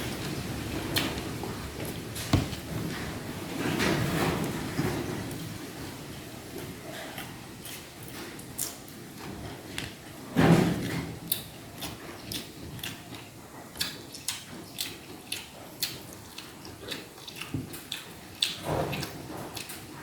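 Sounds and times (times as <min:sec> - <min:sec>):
mouth chewing with wet smacks: 0:11.2 - 0:20.0.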